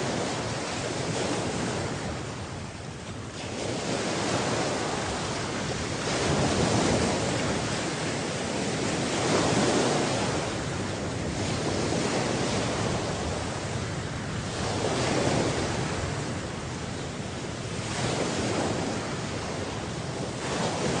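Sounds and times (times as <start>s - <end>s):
surf washing onto shore: 0.0s - 21.0s.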